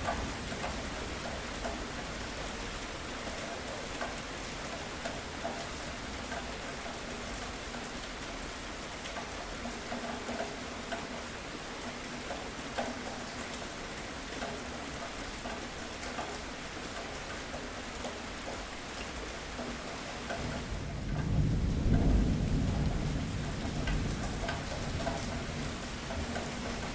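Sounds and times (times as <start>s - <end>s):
steady rain falling: 0.0s - 26.9s
low rumble of thunder: 20.4s - 26.9s.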